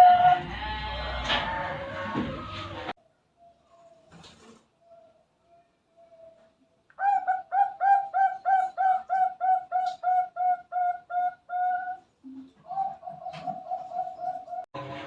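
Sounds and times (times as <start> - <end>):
dove cooing: 6.0 - 14.7.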